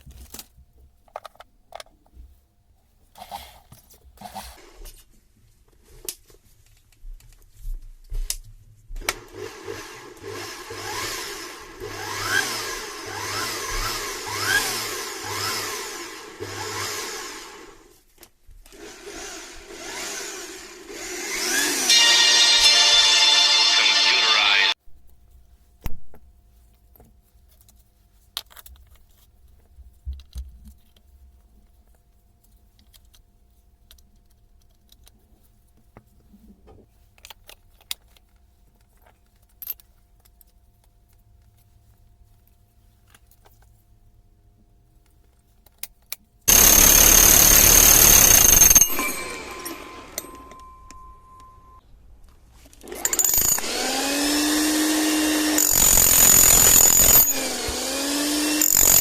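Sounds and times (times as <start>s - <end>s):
hammer drill running: 9.1s - 17.9s, 18.7s - 24.8s, 46.5s - 50.7s, 52.8s - 59.0s.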